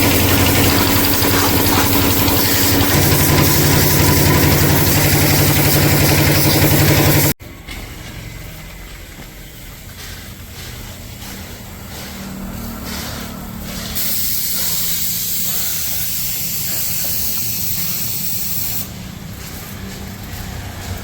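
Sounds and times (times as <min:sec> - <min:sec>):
machine motor humming: 0:00.0 - 0:07.4
spray gun spraying: 0:00.0 - 0:07.4, 0:10.0 - 0:20.2.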